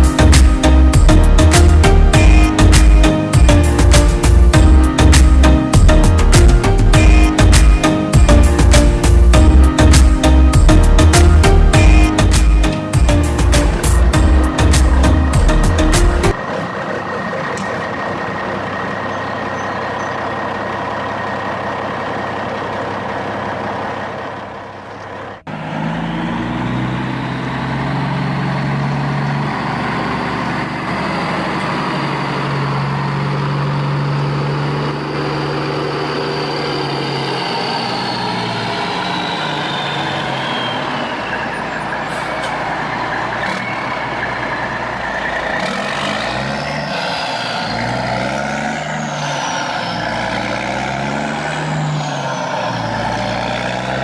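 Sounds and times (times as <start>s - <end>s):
steady low drone: 0.0s - 23.3s.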